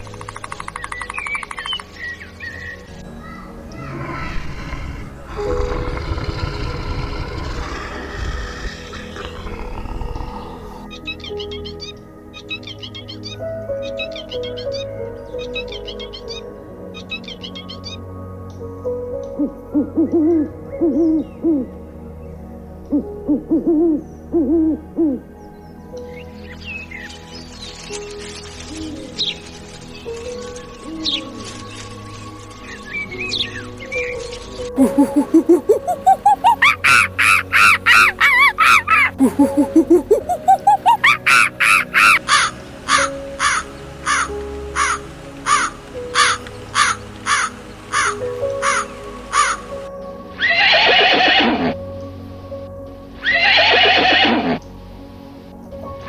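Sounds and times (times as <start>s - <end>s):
faint held music notes: 0.0s - 56.0s
animal hooting calls: 3.2s - 11.1s, 34.8s - 49.8s, 50.4s - 51.8s, 53.2s - 54.6s.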